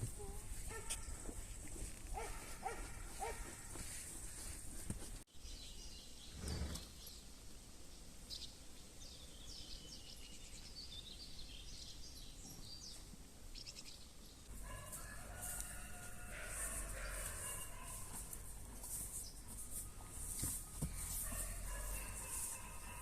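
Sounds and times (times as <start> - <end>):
birds chirping: 15.7 - 20.0, 20.7 - 23.0.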